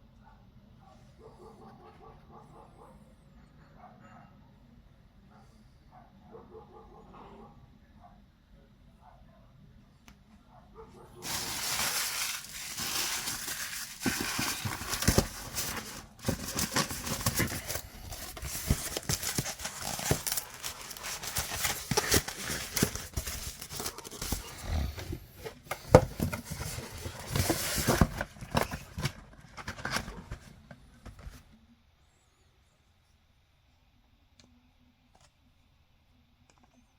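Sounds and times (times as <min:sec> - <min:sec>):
plastic and foam crinkling: 0:11.2 - 0:31.6.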